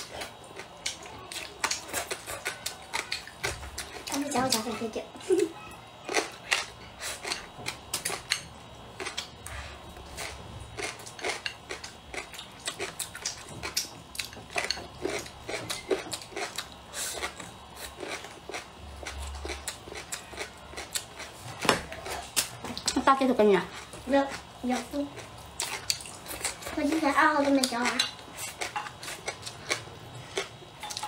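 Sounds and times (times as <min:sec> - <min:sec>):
chewing and mouth smacks: 0:25.2 - 0:26.7.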